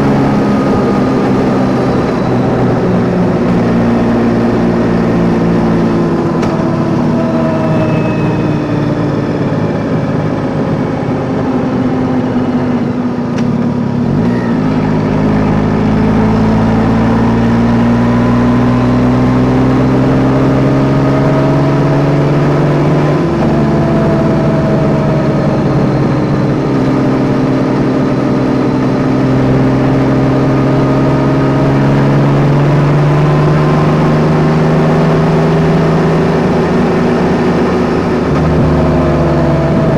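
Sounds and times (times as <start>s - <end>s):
gear shifts: 0.0s - 39.9s
motorcycle engine accelerating: 0.0s - 39.9s.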